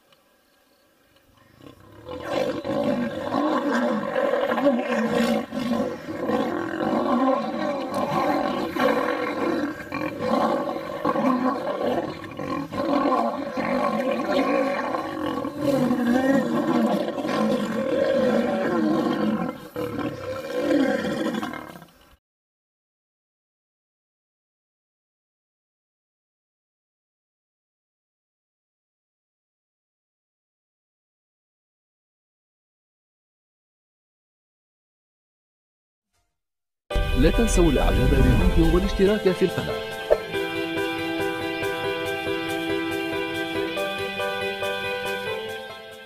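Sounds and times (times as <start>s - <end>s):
lions roaring: 1.6s - 21.9s.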